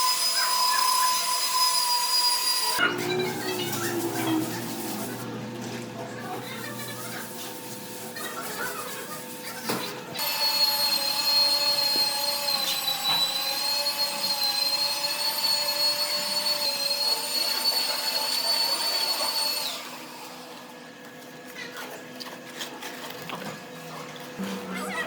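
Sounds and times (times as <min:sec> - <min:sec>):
electric power tool whining: 0:00.0 - 0:06.9, 0:10.2 - 0:20.7.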